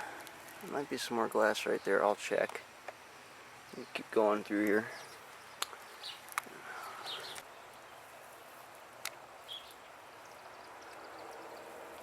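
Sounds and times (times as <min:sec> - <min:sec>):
faint woodland hiss: 0:00.0 - 0:12.0
bird chirps: 0:04.8 - 0:08.6, 0:09.4 - 0:12.0.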